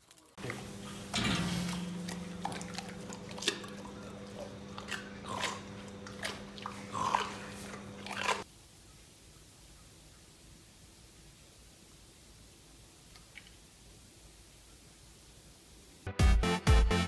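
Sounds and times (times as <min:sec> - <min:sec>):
crunching and chewing: 0:00.0 - 0:08.5
steady low hum: 0:00.4 - 0:08.4.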